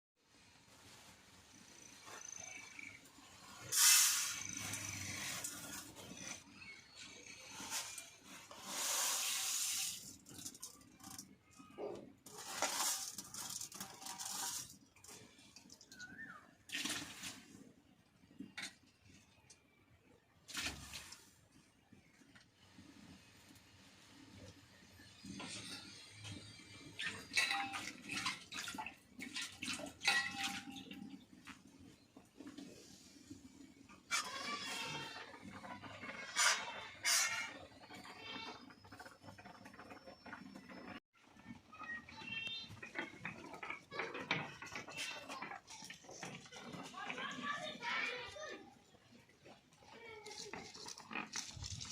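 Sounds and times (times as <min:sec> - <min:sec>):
hissing bursts: 0:03.4 - 0:06.0, 0:07.5 - 0:10.2
water splashing and sloshing: 0:16.6 - 0:18.9, 0:20.4 - 0:21.7, 0:25.4 - 0:51.9
pots and utensils clinking: 0:25.1 - 0:31.7, 0:33.9 - 0:48.4.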